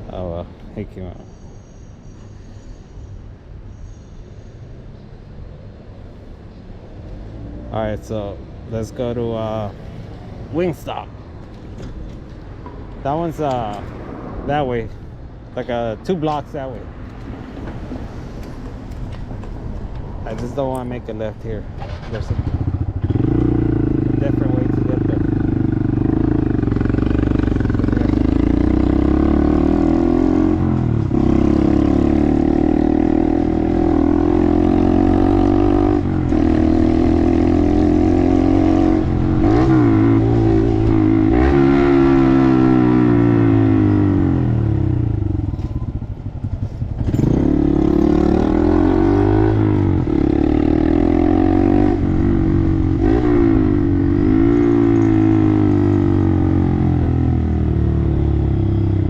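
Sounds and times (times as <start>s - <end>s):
motorcycle engine revving: 21.8s - 59.0s.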